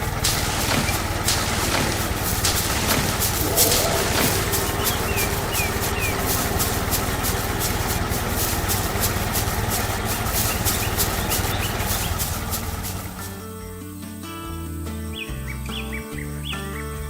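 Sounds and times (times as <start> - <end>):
engine idling: 0.0 - 13.5
faint bird chirps: 3.0 - 9.2.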